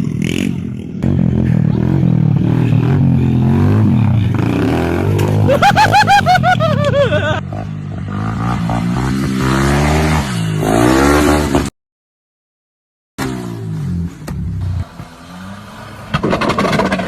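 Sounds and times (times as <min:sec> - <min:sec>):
dirt bike engine revving: 0:07.2 - 0:11.7.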